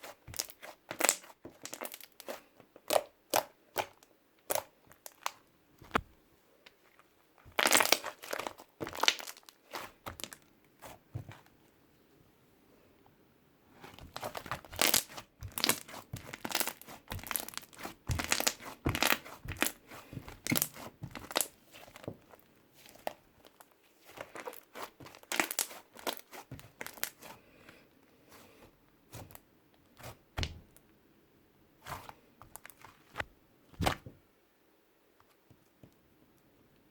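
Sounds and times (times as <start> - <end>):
dry material crushed by hand: 7.4 - 10.4, 13.9 - 27.4.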